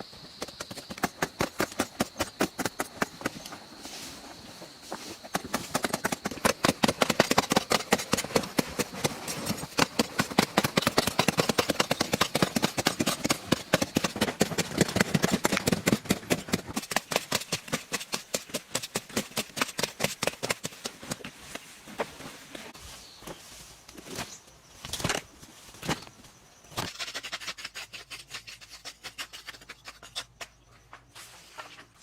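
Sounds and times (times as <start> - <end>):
rapid sharp knocks: 9.7 - 20.8.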